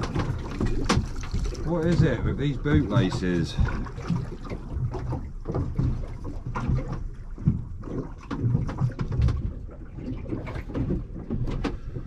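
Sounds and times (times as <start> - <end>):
knocks on a boat: 0.0 - 9.7
water around a boat: 0.0 - 12.0
wind: 0.0 - 12.0.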